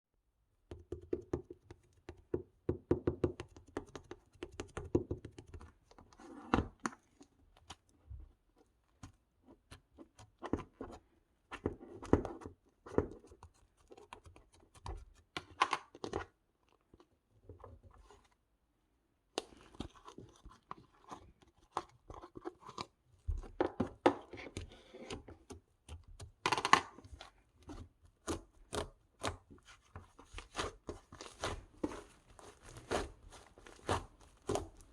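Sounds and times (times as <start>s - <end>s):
crunching and crackling: 30.2s - 34.9s.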